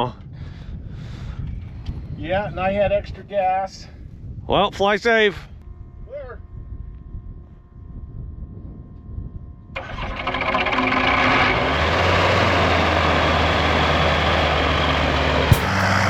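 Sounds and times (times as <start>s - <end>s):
engine starting and running: 9.7s - 16.0s.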